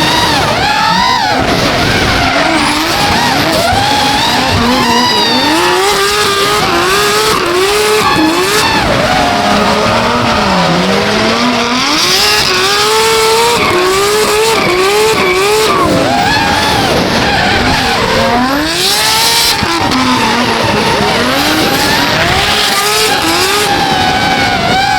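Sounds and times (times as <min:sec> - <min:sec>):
car engine revving hard: 0:00.0 - 0:24.9
tyres screeching: 0:00.0 - 0:24.9.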